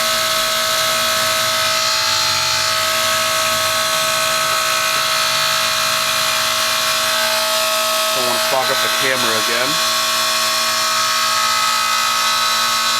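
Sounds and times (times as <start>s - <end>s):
heat pump humming with whine: 0.0s - 12.9s.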